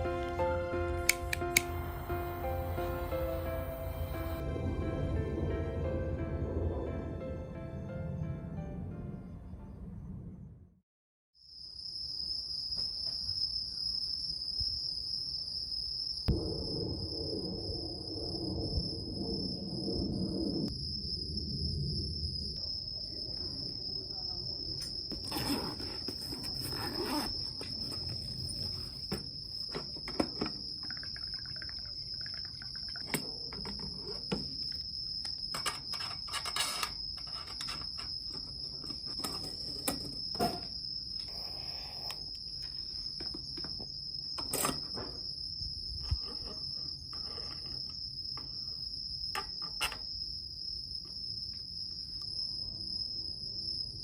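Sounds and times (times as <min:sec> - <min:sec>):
low rumble: 0:02.4 - 0:10.8, 0:16.3 - 0:22.6
insects chirring: 0:11.4 - 0:54.0.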